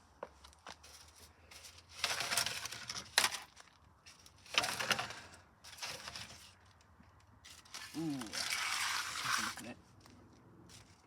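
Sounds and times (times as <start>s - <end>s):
scraping and rustling: 7.5s - 9.7s.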